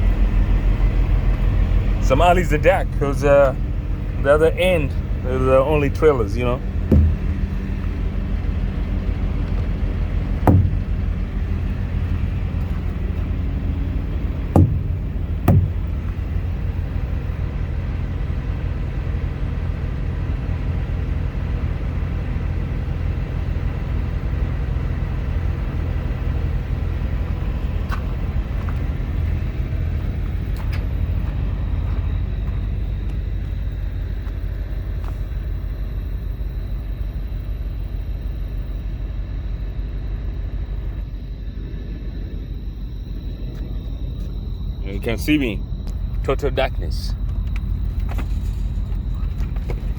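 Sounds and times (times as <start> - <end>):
diesel truck engine idling: 0.0 - 49.9
sharp knocks: 6.8 - 8.0, 10.4 - 11.4, 14.5 - 16.2.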